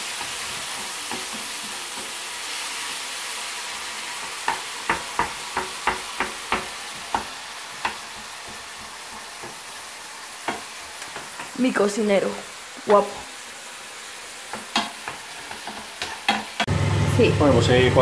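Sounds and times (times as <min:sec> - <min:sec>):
vegetables sizzling in frying pan: 0:00.0 - 0:18.0
wooden spoon knocking pan: 0:04.2 - 0:09.6, 0:10.4 - 0:11.6, 0:14.5 - 0:16.7.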